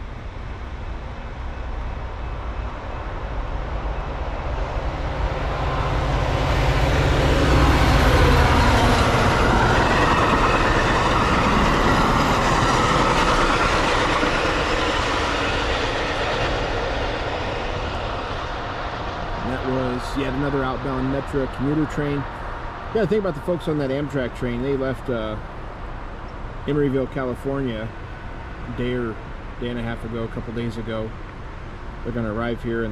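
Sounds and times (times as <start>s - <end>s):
diesel train passing: 0.0s - 32.9s
wheels rushing on rails: 0.0s - 32.9s.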